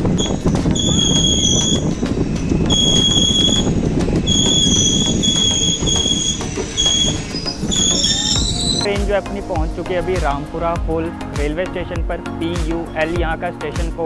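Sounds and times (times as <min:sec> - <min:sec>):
train rumble and rail clatter: 0:00.0 - 0:08.9
metallic wheel and brake squeal: 0:00.2 - 0:08.9.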